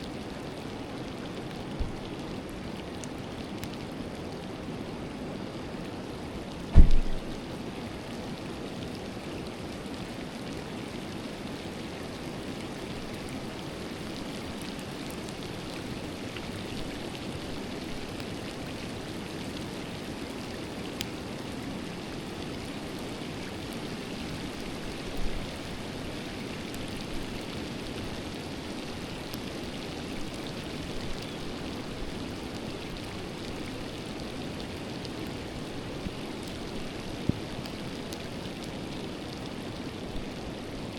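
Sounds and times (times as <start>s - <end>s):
river flowing: 0.0s - 40.9s
soft low thump: 6.7s - 7.3s.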